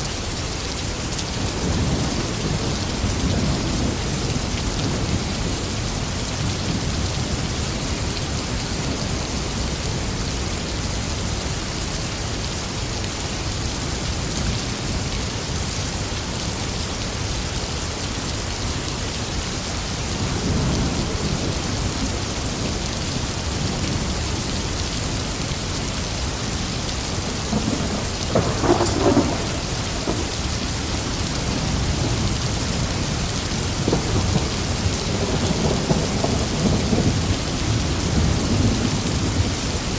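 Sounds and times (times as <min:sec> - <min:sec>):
heavy rain: 0:00.0 - 0:39.9
crackling thunderclap: 0:26.8 - 0:39.9
rolling thunder: 0:27.1 - 0:39.7.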